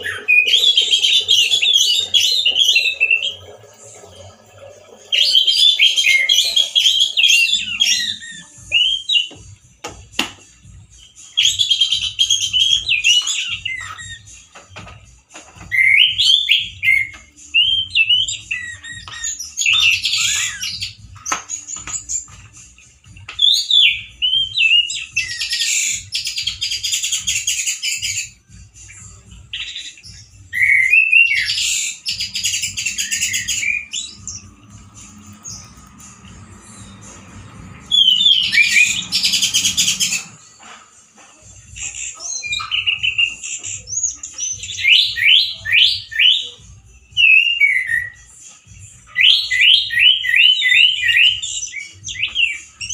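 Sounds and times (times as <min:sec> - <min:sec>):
thrush singing harsh bursts: 0:30.9 - 0:41.2.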